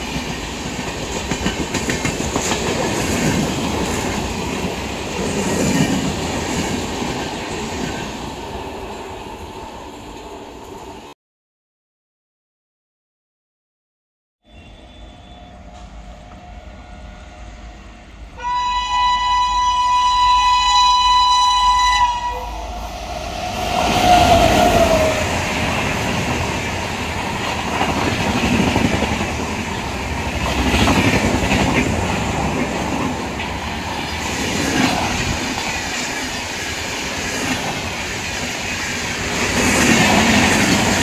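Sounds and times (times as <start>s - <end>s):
locomotive horn: 14.4s - 25.4s.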